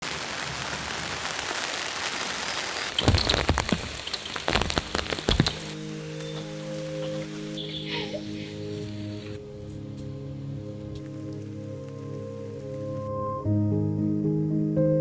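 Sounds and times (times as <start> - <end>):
heavy raindrops tapping: 0.0 - 13.1
rain hiss: 0.0 - 13.2
soft sustained music: 4.4 - 15.0.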